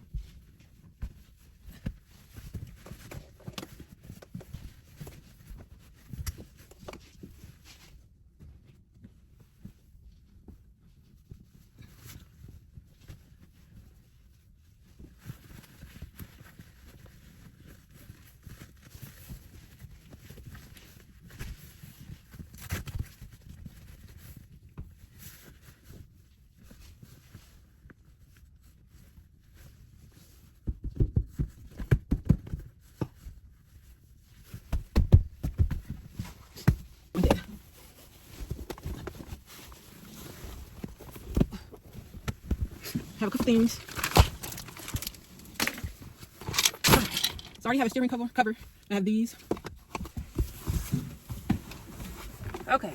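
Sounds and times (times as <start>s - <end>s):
soft rustling: 0.0s - 31.8s, 32.6s - 52.9s
objects being handled: 31.3s - 52.9s.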